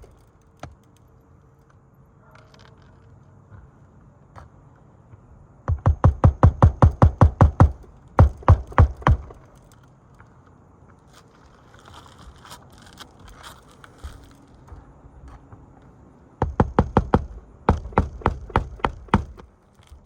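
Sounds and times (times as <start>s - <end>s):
hammer striking nails: 5.7s - 9.6s, 16.4s - 19.5s.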